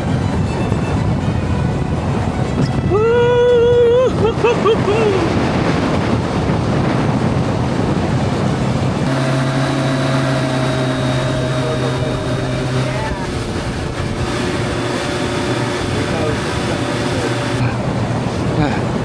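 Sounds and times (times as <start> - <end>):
motorboat engine hum: 0.0 - 19.0
wind rushing on microphone: 0.0 - 19.0
wavering pitched sound: 9.1 - 17.8.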